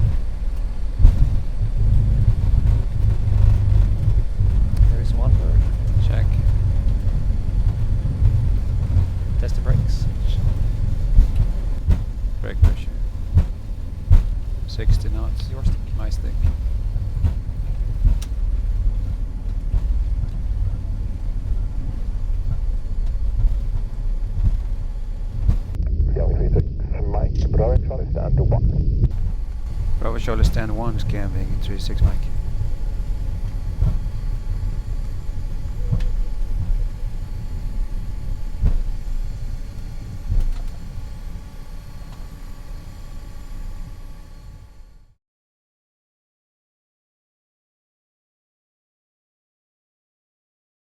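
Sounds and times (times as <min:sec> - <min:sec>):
short thumps: 0:00.0 - 0:25.8, 0:29.0 - 0:42.6
wheels rumbling on runway: 0:00.0 - 0:26.9, 0:27.7 - 0:45.1
airliner engines idling: 0:00.0 - 0:27.0, 0:29.1 - 0:45.1
faint steady tones: 0:00.0 - 0:28.1, 0:29.0 - 0:45.1.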